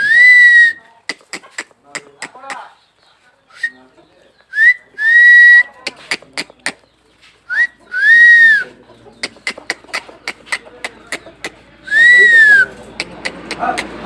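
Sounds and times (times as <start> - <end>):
person whistling: 0.0 - 0.8, 4.6 - 5.7, 7.5 - 8.6, 11.9 - 12.7.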